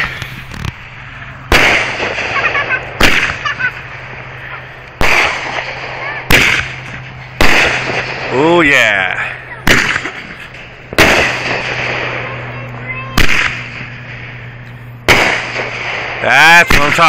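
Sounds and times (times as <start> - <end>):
fireworks booming: 0.0 - 17.0
fireworks crackling: 0.0 - 17.0.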